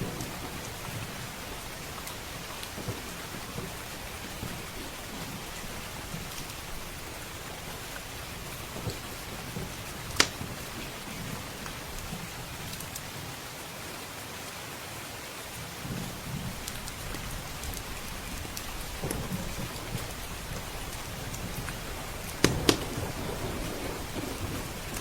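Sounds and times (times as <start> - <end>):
low thunder rumble: 0.0 - 12.7, 15.8 - 25.0
wood fire crackling: 0.0 - 13.1, 15.9 - 25.0
steady rain: 0.0 - 25.0.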